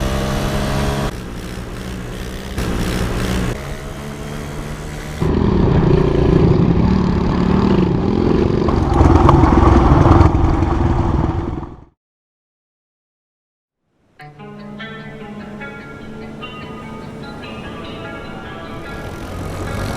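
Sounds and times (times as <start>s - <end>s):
small motorbike engine revving: 0.0s - 11.7s, 16.4s - 19.9s.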